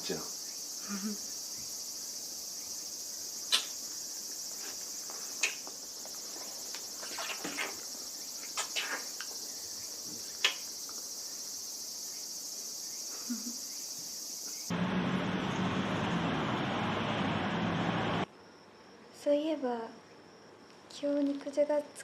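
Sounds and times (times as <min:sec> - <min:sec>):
insects chirping: 0:00.0 - 0:14.8, 0:18.2 - 0:22.0.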